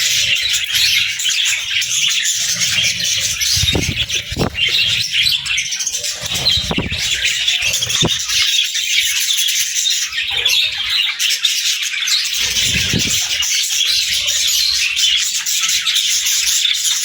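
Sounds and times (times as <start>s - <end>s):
budgies chirping and warbling: 0.0s - 17.0s
low thumps: 1.9s - 5.6s, 6.2s - 8.4s.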